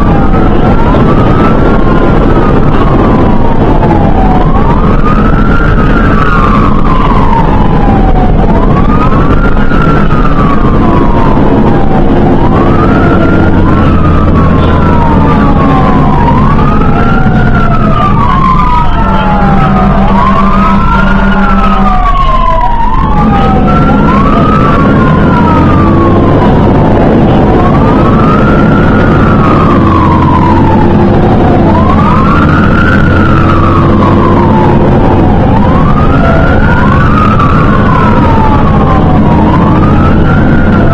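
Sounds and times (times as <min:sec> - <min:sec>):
fire engine siren wailing: 0:00.0 - 0:40.9
truck engine rumble: 0:00.0 - 0:40.9.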